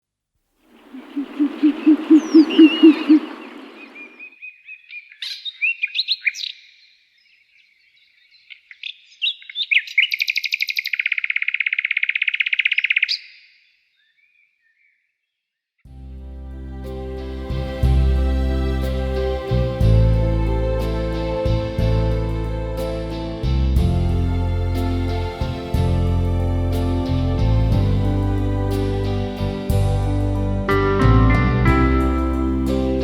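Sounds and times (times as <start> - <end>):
low hooting bird notes: 0.7 - 4.3
fast high bird trill: 0.8 - 4.3
high bird chirps: 0.8 - 6.9, 8.2 - 15.0.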